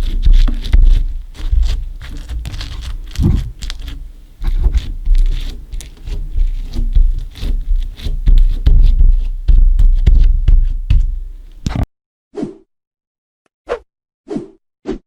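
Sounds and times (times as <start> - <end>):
slime squished by hand: 0.0 - 7.4
heavy low thuds: 0.0 - 11.8.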